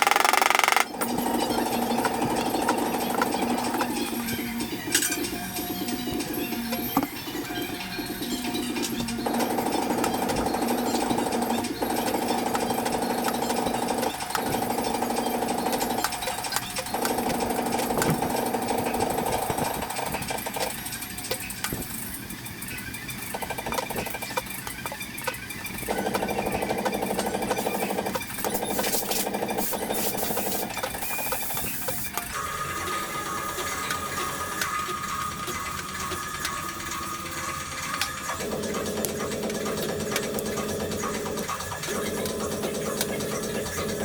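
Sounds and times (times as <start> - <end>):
power tool rattling on sheet metal: 0.0 - 1.0
power tool hammering: 0.0 - 4.2.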